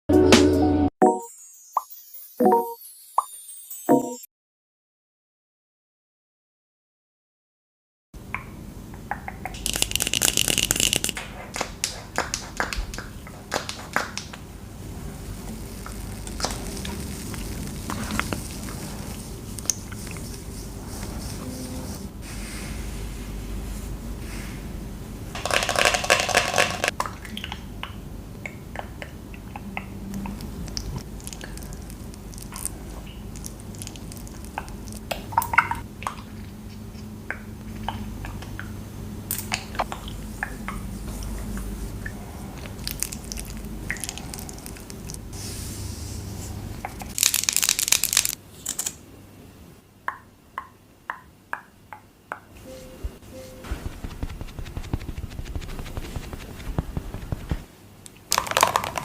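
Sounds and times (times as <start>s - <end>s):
packaging crinkling: 9.6s - 11.2s, 25.4s - 26.9s, 47.1s - 49.0s.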